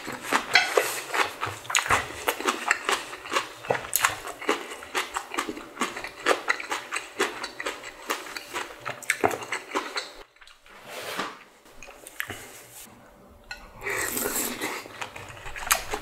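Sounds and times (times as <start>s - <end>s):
wet chewing and smacking: 0.0s - 10.6s, 14.1s - 16.0s.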